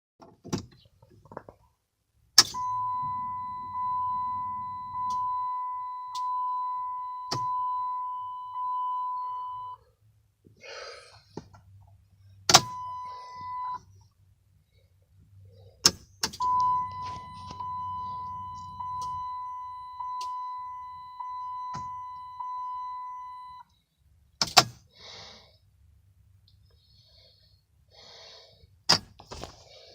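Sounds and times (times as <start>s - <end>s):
car warning chime dinging: 2.4s - 9.8s, 12.5s - 13.8s, 16.4s - 23.6s.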